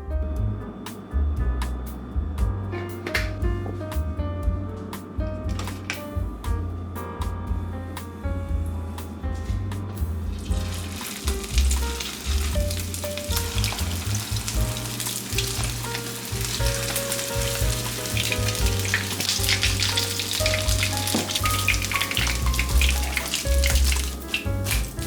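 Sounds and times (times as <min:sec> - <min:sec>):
background music: 0:00.0 - 0:25.0
food sizzling: 0:10.3 - 0:25.0.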